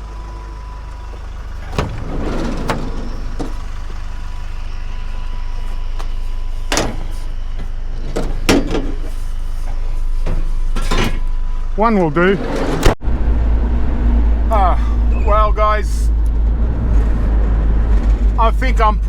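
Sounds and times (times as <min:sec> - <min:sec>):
vehicle engine idling: 0:00.0 - 0:19.0
scrap metal knocks and clunks: 0:01.5 - 0:03.8, 0:06.7 - 0:09.2.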